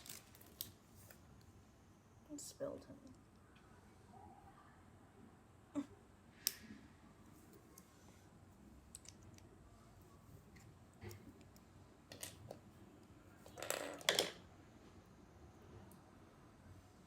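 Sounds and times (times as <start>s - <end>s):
packaging rustle: 0.0s - 0.7s.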